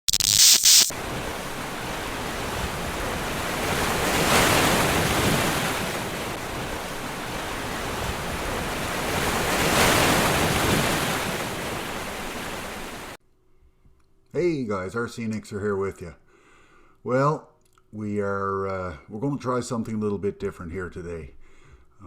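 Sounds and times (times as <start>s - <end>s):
ocean surf washing ashore: 0.8s - 13.2s.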